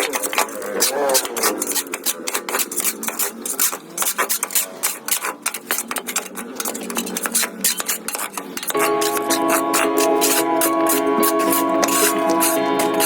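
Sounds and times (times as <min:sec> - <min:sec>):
scraping strokes on hard surface: 0:00.1 - 0:13.0
music: 0:08.8 - 0:13.0.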